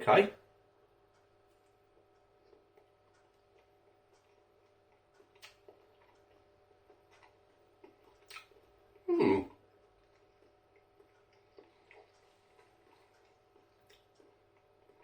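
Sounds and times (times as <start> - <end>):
low steady hum: 0.0 - 15.0
person clearing throat: 9.1 - 9.6.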